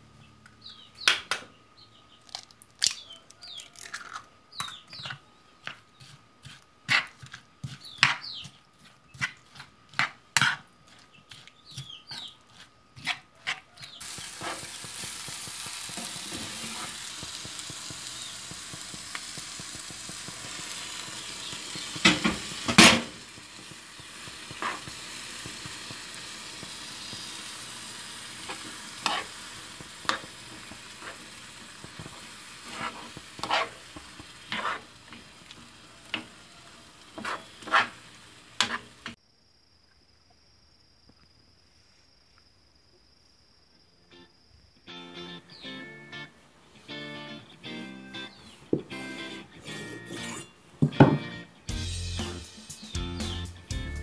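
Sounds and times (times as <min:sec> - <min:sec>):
spoon scraping and knocking pan: 0:04.6 - 0:39.2
metal spoon scraping a bowl: 0:05.0 - 0:14.6, 0:32.6 - 0:33.8, 0:34.5 - 0:34.9, 0:49.7 - 0:50.6
food sizzling in a pan: 0:13.8 - 0:39.2.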